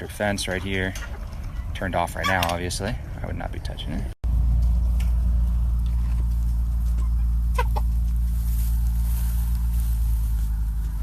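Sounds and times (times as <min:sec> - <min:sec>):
low engine hum: 0:02.6 - 0:11.0
chicken clucking: 0:06.8 - 0:08.6.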